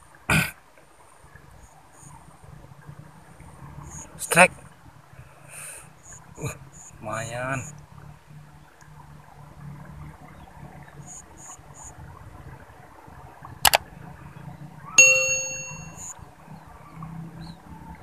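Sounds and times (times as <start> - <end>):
metallic clang ringing: 15.0 - 16.1.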